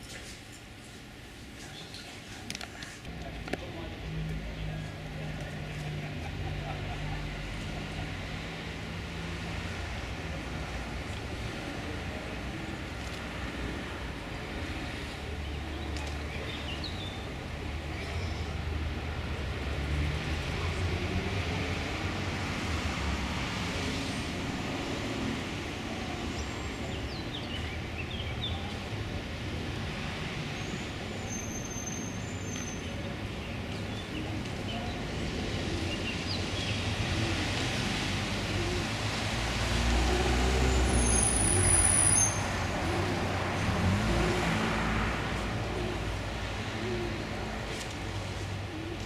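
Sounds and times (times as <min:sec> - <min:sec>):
road noise: 0:00.0 - 0:49.0.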